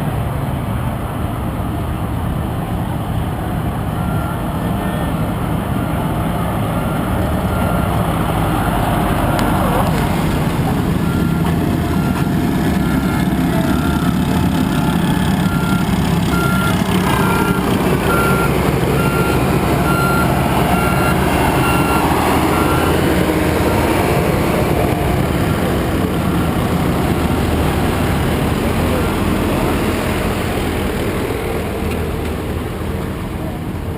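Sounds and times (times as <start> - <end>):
heavy engine running: 0.0 - 33.9
backup alarm beeping: 11.0 - 14.2, 14.8 - 23.0.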